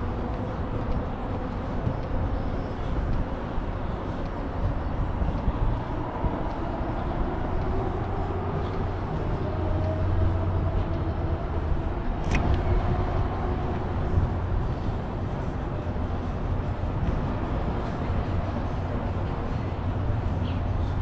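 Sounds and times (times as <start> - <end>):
faint engine hum: 0.0 - 21.0
passing vehicles rumbling: 0.0 - 21.0
sharp click: 12.2 - 12.6.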